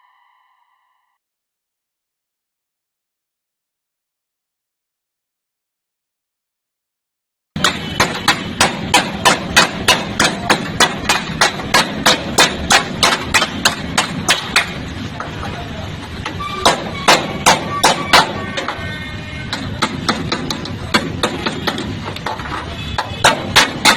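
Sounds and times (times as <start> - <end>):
hammer striking sheet metal: 7.6 - 15.3, 16.2 - 18.8, 19.5 - 23.9.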